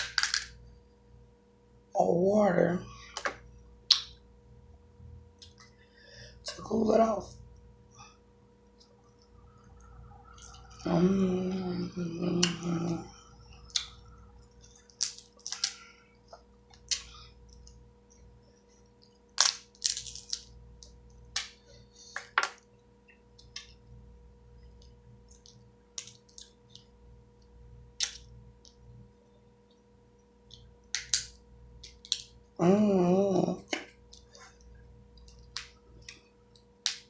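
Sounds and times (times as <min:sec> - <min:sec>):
shells cracking and crunching: 0:00.0 - 0:00.6, 0:14.6 - 0:15.9, 0:19.0 - 0:21.6, 0:30.9 - 0:32.4.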